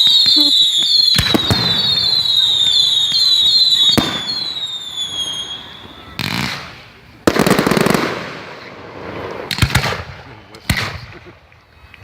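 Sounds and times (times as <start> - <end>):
firework whistle: 0.0 - 6.8
firework cracks: 0.0 - 11.1
firework bangs: 0.0 - 11.2.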